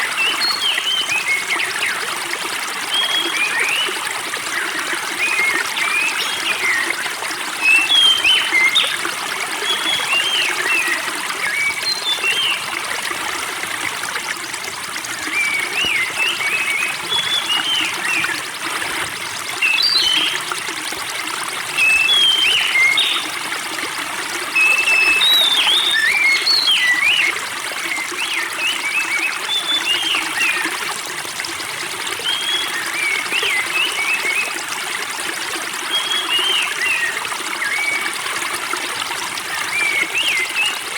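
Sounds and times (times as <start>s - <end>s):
spring water trickling and splashing: 0.0s - 40.9s
songbirds chirping: 21.7s - 23.4s, 24.6s - 27.3s.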